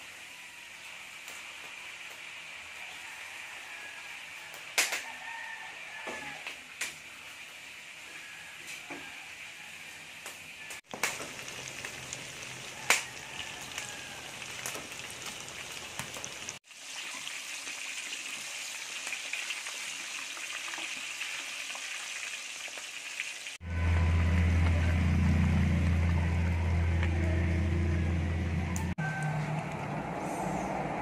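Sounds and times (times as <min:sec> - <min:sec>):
garlic and onions sizzling: 0:00.0 - 0:26.0
loud low hum: 0:23.6 - 0:31.0.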